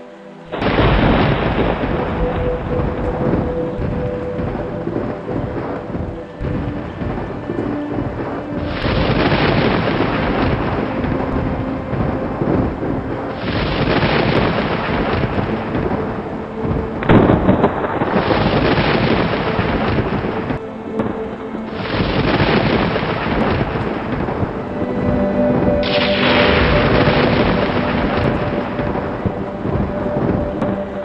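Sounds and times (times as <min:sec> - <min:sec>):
heavy rain: 0:00.0 - 0:31.0
loud thunderclap: 0:00.5 - 0:31.0
rolling thunder: 0:00.5 - 0:31.0.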